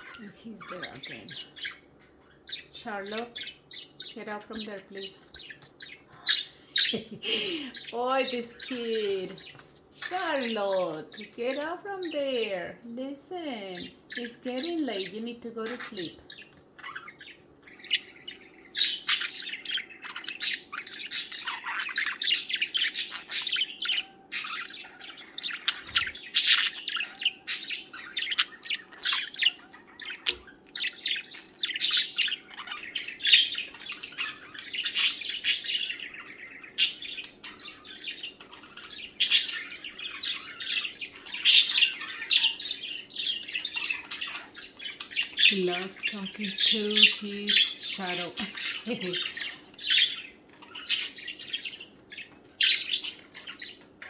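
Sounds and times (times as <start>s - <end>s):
budgerigars chirping and warbling: 0.0s - 54.0s.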